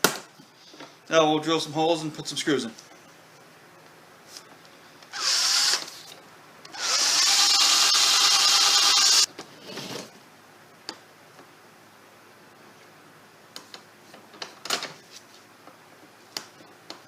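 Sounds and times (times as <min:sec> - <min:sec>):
power drill boring into wood: 0:05.1 - 0:05.9, 0:06.7 - 0:09.3.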